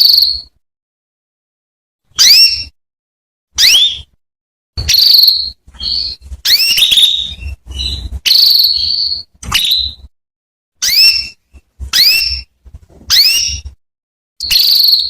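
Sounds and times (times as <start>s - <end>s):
canary chirps and trills: 0.0s - 0.6s, 2.1s - 2.8s, 3.6s - 4.2s, 4.8s - 10.1s, 10.8s - 13.8s, 14.4s - 15.0s.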